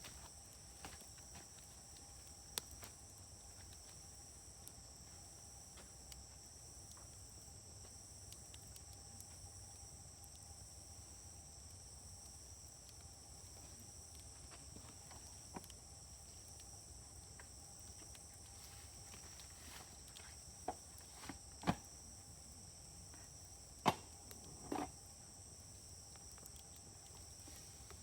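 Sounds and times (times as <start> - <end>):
crickets chirring: 0.0 - 28.0
wood fire crackling and popping: 0.0 - 28.0.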